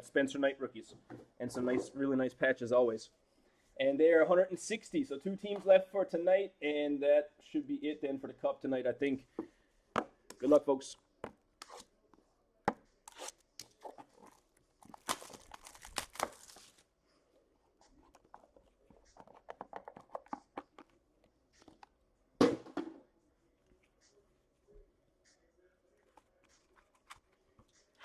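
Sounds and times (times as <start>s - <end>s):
packaging tearing and crinkling: 13.1s - 16.8s
packaging clicks: 14.8s - 16.8s.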